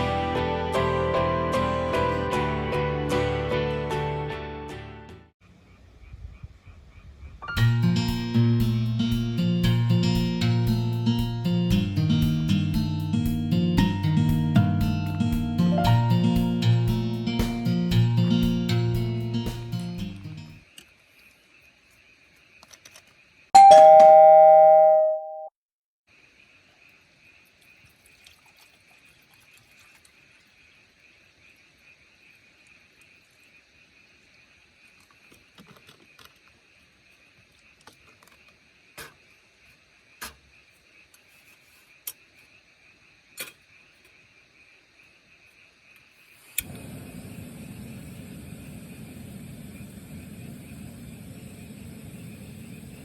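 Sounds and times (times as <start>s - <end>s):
two-tone doorbell chime: 23.6s - 25.5s.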